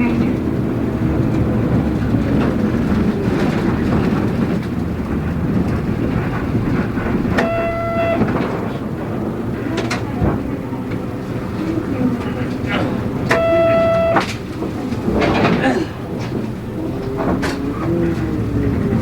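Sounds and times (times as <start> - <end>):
bus body rattles: 0.0 - 19.0
bus engine and road rumble: 0.0 - 19.0
short electronic tone: 7.4 - 8.3, 13.3 - 14.2.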